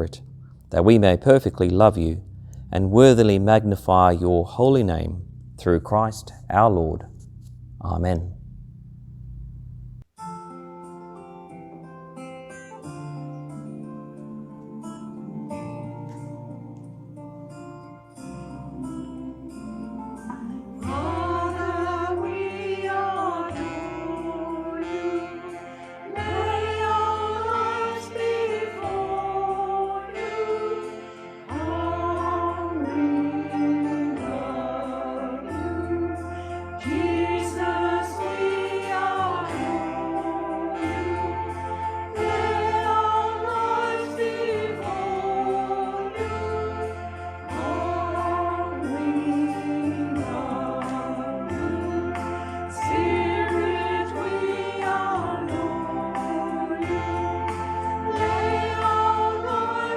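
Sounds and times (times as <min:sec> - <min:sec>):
instrumental accompaniment: 0:00.0 - 0:59.9
group singing a hymn: 0:18.3 - 0:59.9.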